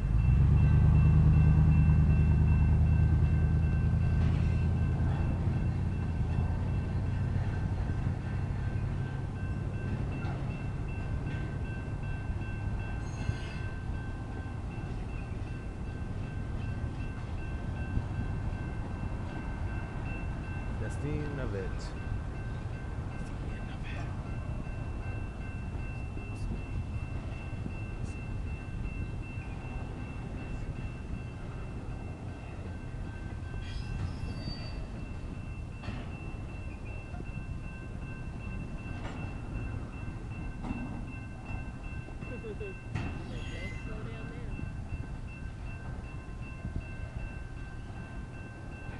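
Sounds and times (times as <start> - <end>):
crossing bells ringing: 0.0 - 48.9
freight train rumbling: 0.0 - 48.9
high metallic squeal: 13.0 - 13.8, 33.6 - 35.1, 43.0 - 44.0.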